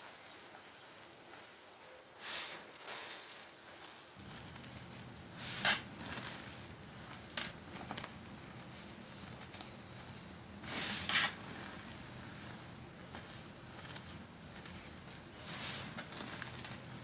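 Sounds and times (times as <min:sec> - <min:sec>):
small crackles: 0:00.0 - 0:17.0
chalk crunching and crumbling: 0:04.2 - 0:17.0.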